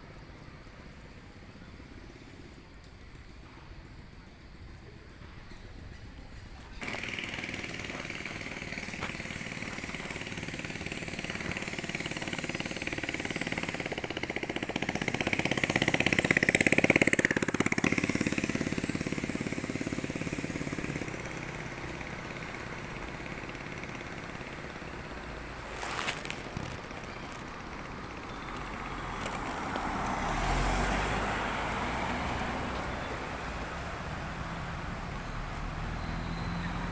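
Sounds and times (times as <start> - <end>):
vehicle engine passing by: 6.8 - 36.9.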